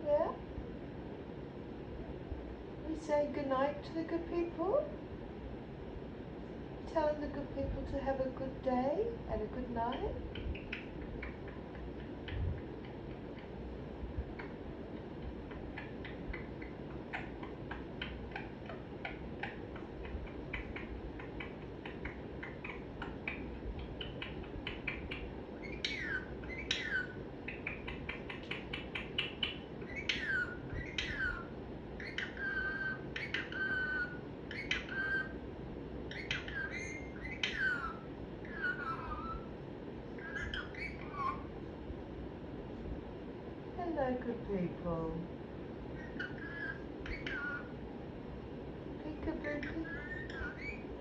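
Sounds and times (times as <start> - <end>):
parrot whistling and chirping: 10.3 - 13.5, 15.5 - 35.4, 36.1 - 39.5, 40.2 - 41.5, 46.0 - 47.8, 49.4 - 51.0.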